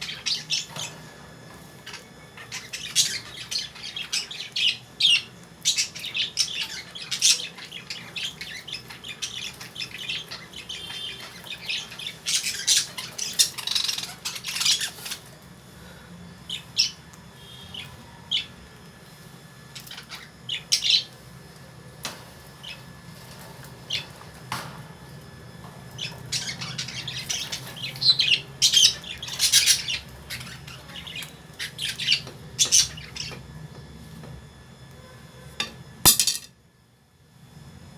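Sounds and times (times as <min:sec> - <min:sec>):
lovebirds squawking and chirping: 0:00.0 - 0:15.3, 0:25.9 - 0:33.4.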